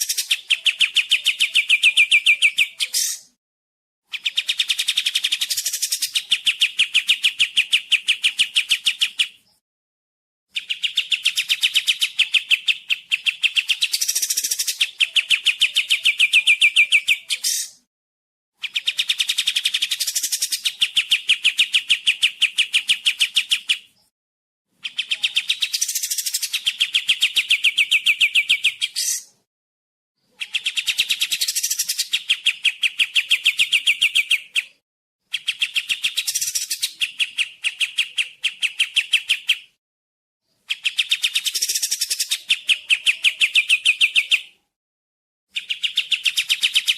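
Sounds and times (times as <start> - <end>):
songbird rapid trill: 10.6 - 17.8, 24.8 - 29.4, 30.4 - 34.8, 35.4 - 39.7, 40.7 - 42.7.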